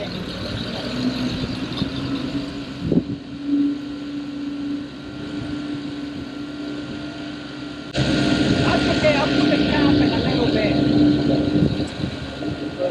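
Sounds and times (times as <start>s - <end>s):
refuelling pump humming: 0.0s - 12.9s.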